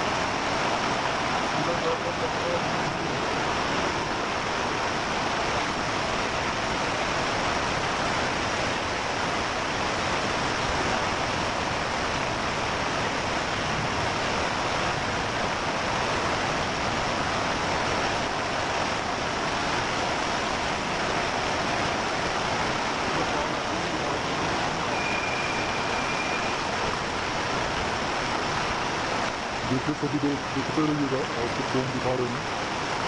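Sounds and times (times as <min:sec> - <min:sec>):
heavy rain with hail: 0:00.0 - 0:33.0.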